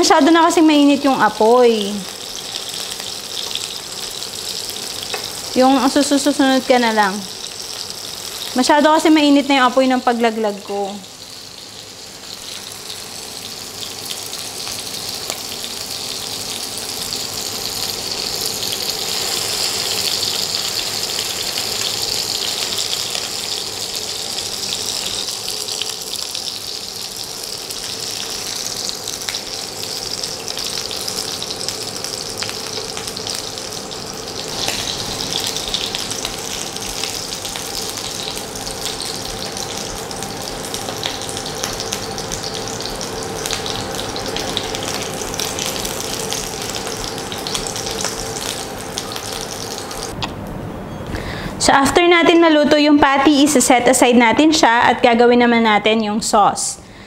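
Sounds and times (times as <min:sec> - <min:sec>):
person speaking: 0:00.0 - 0:02.1, 0:08.6 - 0:11.0
patties sizzling in a pan: 0:00.0 - 0:50.2.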